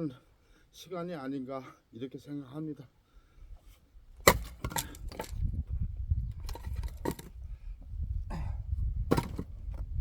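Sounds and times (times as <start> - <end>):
axe striking wood: 4.2 - 5.3, 9.1 - 9.5.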